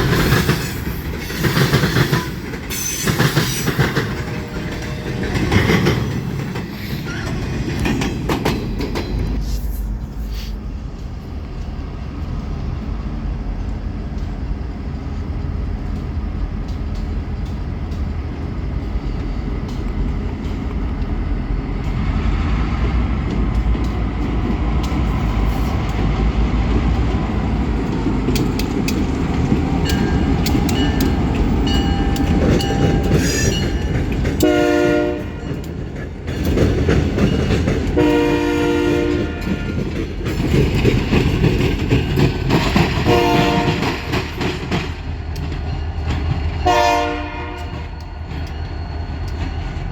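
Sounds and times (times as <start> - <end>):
rail clatter: 0.0 - 10.2, 10.9 - 49.9
diesel locomotives rumbling: 0.0 - 49.9
locomotive air horn blasts: 34.4 - 35.6, 38.0 - 39.8, 43.0 - 44.0, 46.6 - 47.9.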